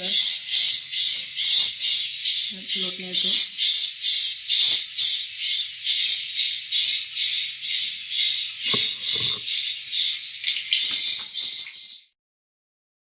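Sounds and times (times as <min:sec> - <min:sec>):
soft knocks: 0:08.7 - 0:09.4.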